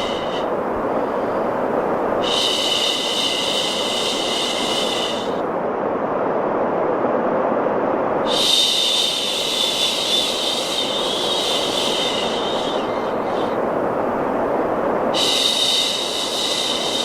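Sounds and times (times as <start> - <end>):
muffled rushing white noise: 0.0 - 17.0
long shushing sound: 8.3 - 14.5.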